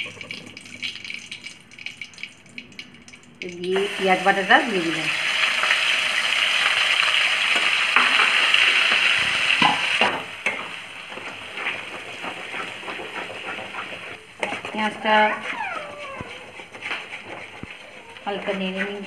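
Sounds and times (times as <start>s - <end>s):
onion sizzling in hot oil: 3.5s - 14.2s
spoon stirring in pan: 10.4s - 19.0s.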